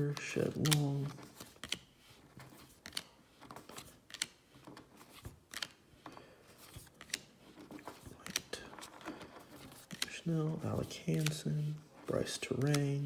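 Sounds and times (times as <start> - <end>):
cards flipped by hand: 0.0 - 13.0.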